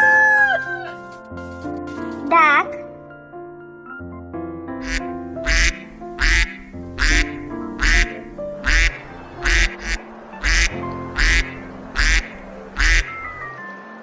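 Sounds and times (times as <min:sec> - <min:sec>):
light background music: 0:00.0 - 0:14.0
duck quacking: 0:04.8 - 0:13.4.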